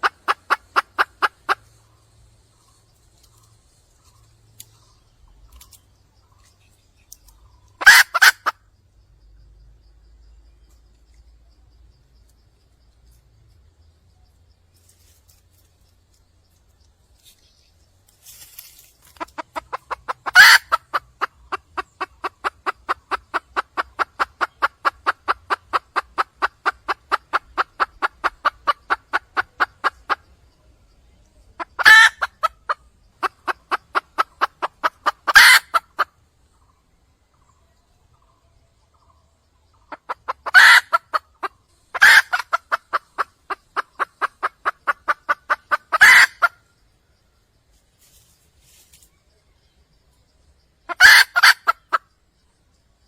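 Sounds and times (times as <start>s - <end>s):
hen clucking: 0.0s - 6.6s, 7.2s - 8.7s, 18.6s - 30.6s, 31.3s - 36.7s, 37.4s - 46.7s, 50.8s - 52.0s.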